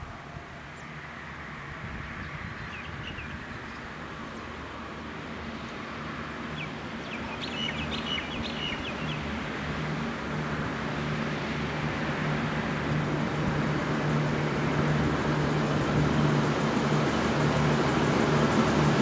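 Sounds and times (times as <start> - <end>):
diesel railcar engine hum: 0.0 - 19.0
birds chirping: 2.2 - 4.6, 5.6 - 9.6.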